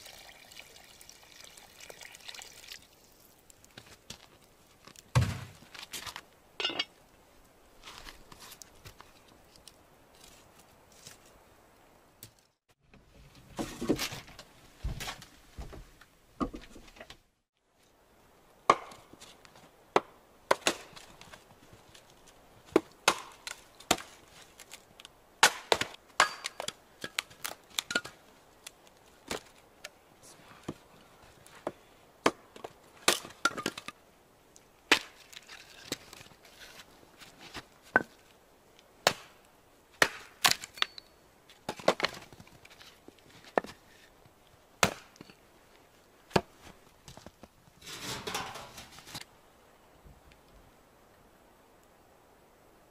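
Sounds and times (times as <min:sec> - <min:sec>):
axe chops splitting wood: 0:18.7 - 0:19.0, 0:25.4 - 0:26.7, 0:34.9 - 0:35.2, 0:39.0 - 0:39.4, 0:40.0 - 0:40.7, 0:44.8 - 0:45.2.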